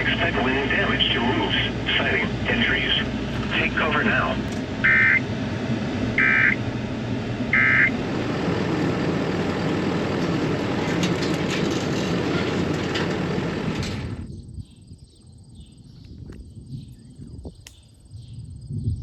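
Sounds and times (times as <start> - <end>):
electronic data-burst tones: 6.2 - 6.6.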